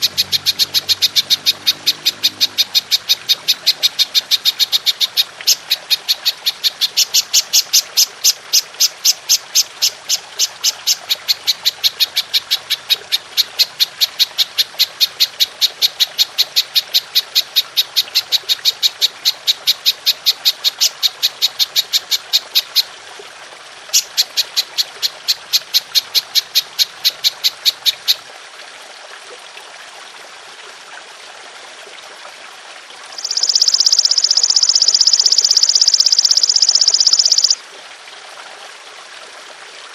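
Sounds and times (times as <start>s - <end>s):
grasshopper chirping: 0.0s - 12.9s, 33.2s - 37.6s.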